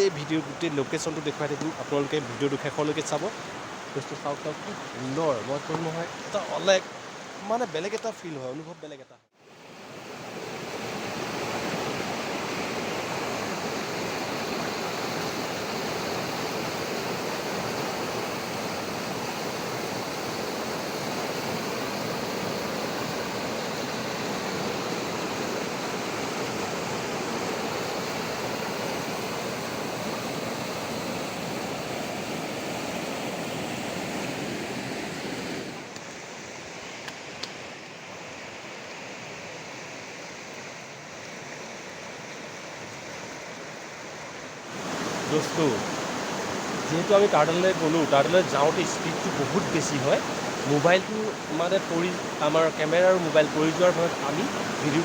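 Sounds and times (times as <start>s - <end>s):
river rushing over stones: 0.0s - 8.6s, 9.4s - 55.0s.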